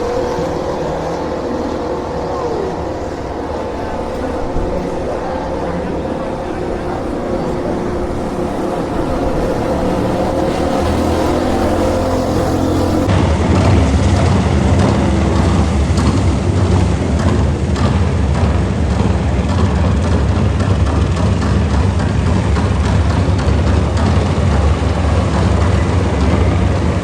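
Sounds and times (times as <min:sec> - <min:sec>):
vehicle engine running: 0:00.0 - 0:13.1
wash of noise: 0:00.0 - 0:13.1.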